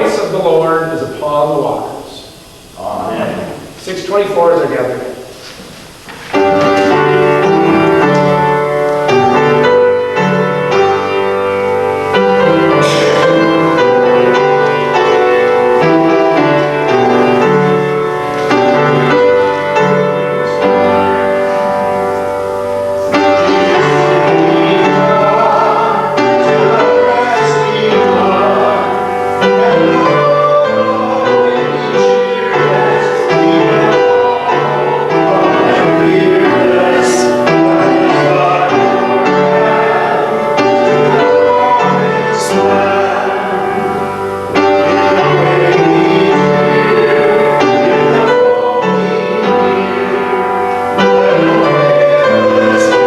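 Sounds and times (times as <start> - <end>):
congregation singing a hymn: 0.0 - 53.0
piano accompaniment: 0.0 - 53.0.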